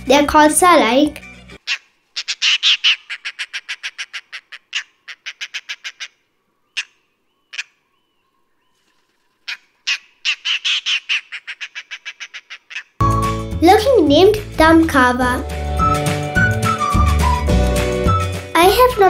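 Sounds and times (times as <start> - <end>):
bird rapid chatter: 1.6 - 7.8, 8.8 - 13.0.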